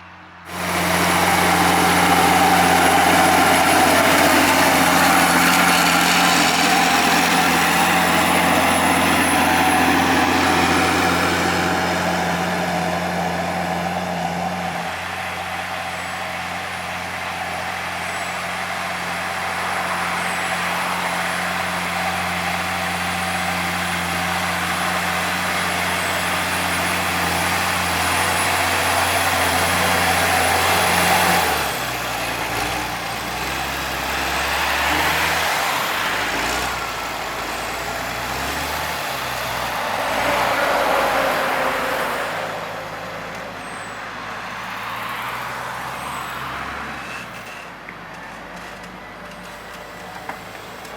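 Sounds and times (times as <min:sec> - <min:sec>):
tractor engine running: 0:00.2 - 0:46.4.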